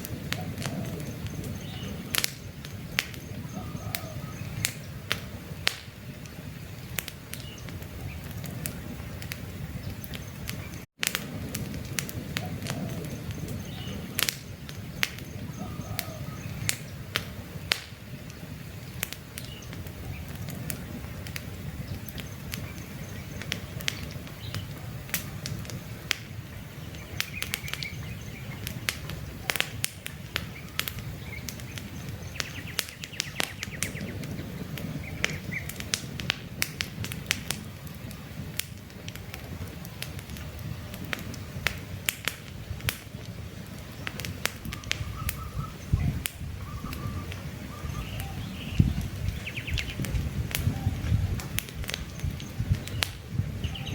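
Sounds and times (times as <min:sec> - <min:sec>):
campfire crackling and popping: 0:00.0 - 0:53.9
faint bird chirps: 0:00.4 - 0:05.0, 0:12.4 - 0:14.2, 0:14.8 - 0:17.1, 0:21.8 - 0:25.6, 0:44.7 - 0:51.4.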